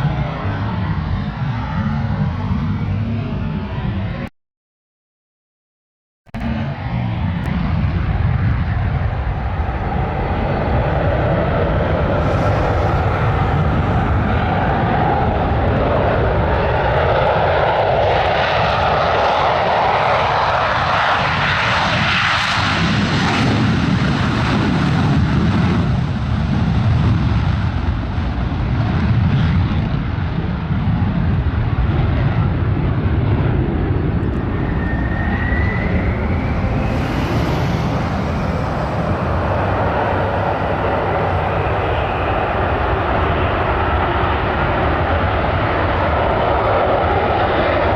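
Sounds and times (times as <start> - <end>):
aircraft engines flying past: 0.0 - 4.3, 6.4 - 47.9
short rising whistle: 34.4 - 43.0.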